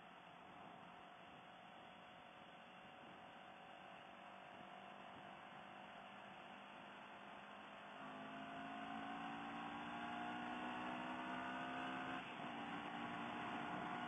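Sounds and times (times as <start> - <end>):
motorcycle engine droning: 6.8 - 14.0.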